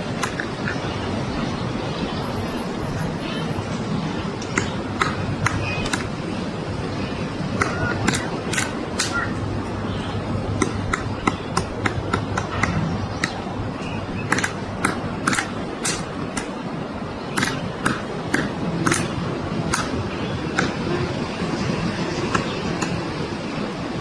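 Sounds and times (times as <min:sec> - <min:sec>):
woodpecker knocking on wood: 0:04.4 - 0:06.1, 0:10.5 - 0:13.5, 0:14.2 - 0:16.6, 0:17.3 - 0:20.8.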